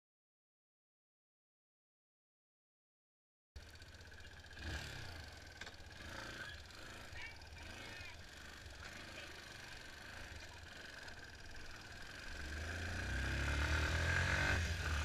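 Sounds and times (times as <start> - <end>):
motorcycle engine idling: 3.6 - 13.4.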